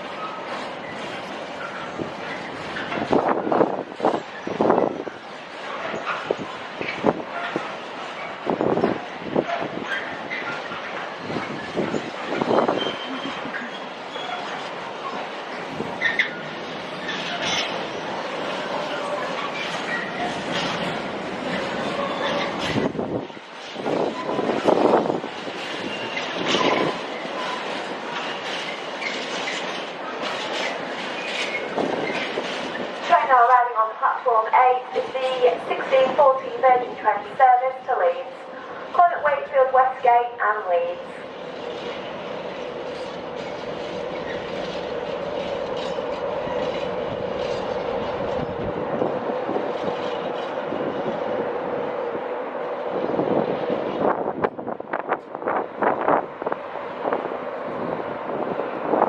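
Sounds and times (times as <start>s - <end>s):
train wheels clattering: 0.2s - 33.2s, 41.5s - 51.4s.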